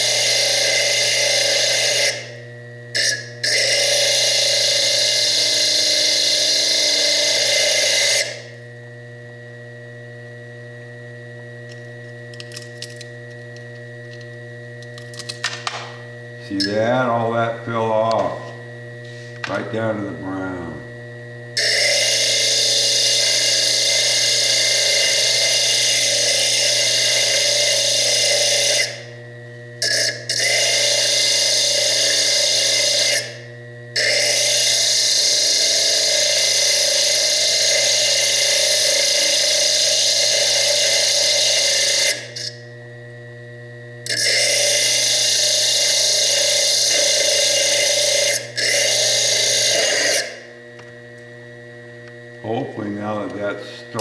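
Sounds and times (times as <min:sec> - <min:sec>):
cutting disc hissing into stone: 0:00.0 - 0:02.4, 0:03.0 - 0:08.6, 0:15.7 - 0:20.9, 0:21.6 - 0:29.2, 0:29.8 - 0:42.6, 0:44.1 - 0:51.1
mains hum: 0:00.0 - 0:54.0.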